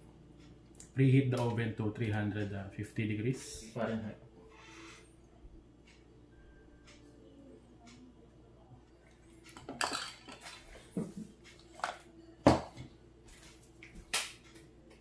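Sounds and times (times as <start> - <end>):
kitchen utensils clinking: 9.5 - 12.8.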